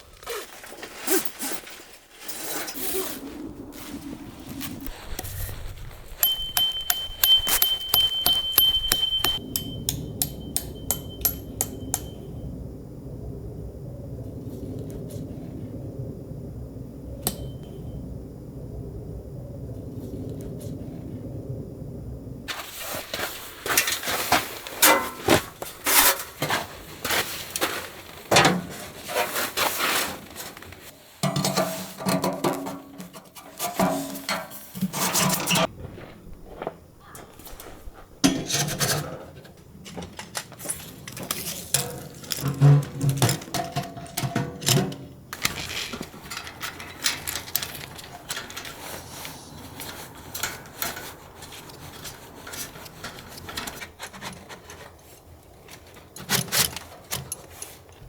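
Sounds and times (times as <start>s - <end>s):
knocks and clinks of objects: 6.2s - 12.3s.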